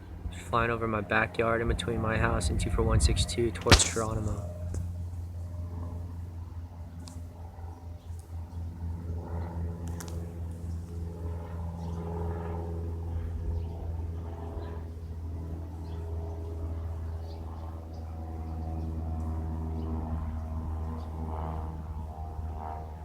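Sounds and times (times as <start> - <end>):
light aircraft flying overhead: 0.0 - 23.0.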